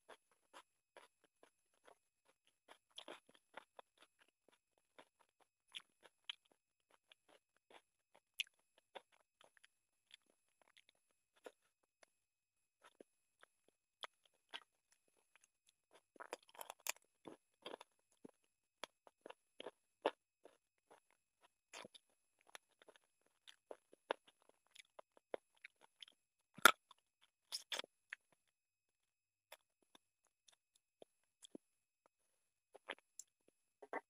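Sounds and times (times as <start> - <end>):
person chewing: 0.1 - 11.7, 12.8 - 28.4, 32.7 - 34.0
food crunching: 12.8 - 28.4.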